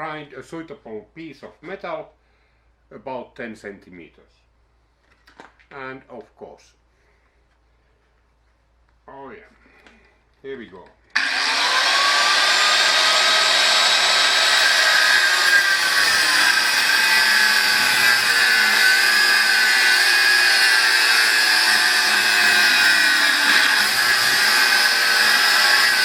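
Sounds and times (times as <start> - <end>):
angle grinder cutting metal: 11.2 - 26.0.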